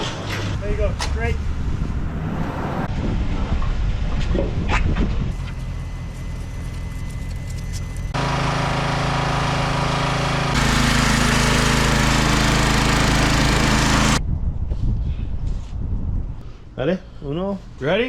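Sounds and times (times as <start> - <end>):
tow truck engine running: 5.4 - 14.2.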